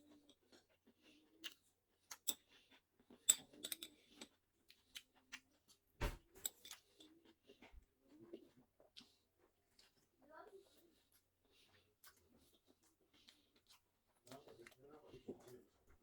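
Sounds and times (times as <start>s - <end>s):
chewing crunchy food: 0.0s - 5.9s, 6.5s - 15.8s
dull thump: 6.0s - 6.3s.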